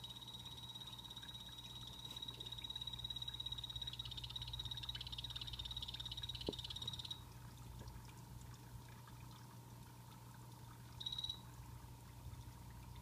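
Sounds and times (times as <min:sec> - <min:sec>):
frog buzzing trill: 0:00.0 - 0:07.2, 0:11.0 - 0:11.4
waterfall trickling: 0:00.0 - 0:13.0.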